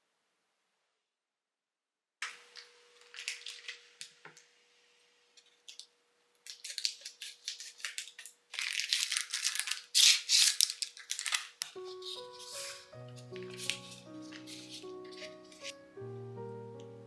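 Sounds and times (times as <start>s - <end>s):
crisp crunching and crinkling: 2.3s - 4.2s, 6.5s - 15.8s.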